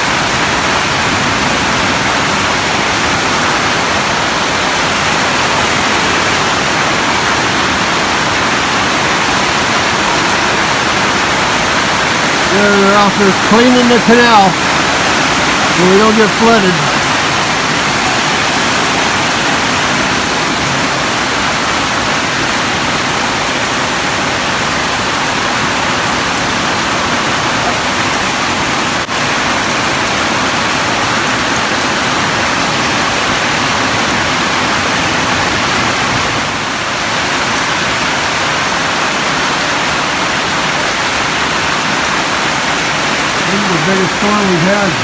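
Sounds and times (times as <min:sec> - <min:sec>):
heavy rain pouring: 0:00.0 - 0:45.0.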